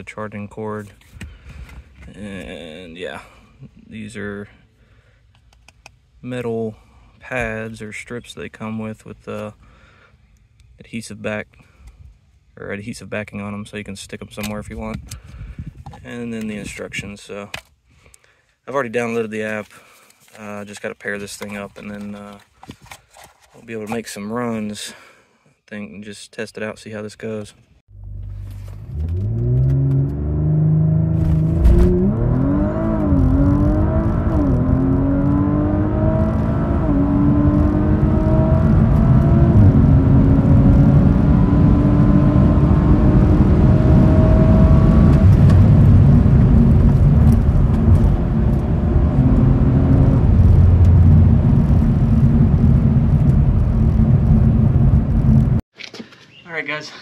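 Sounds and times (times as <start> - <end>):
wind and tyre noise: 14.4 - 17.1, 28.2 - 55.6
car engine accelerating: 27.9 - 55.6.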